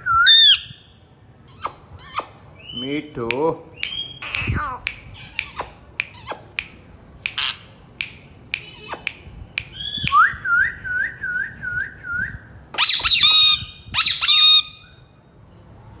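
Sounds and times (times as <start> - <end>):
parrot whistling: 0.0 - 0.8, 9.7 - 15.0
parrot chirps and clicks: 3.2 - 10.2
parrot screeching: 4.1 - 6.4, 12.8 - 15.0.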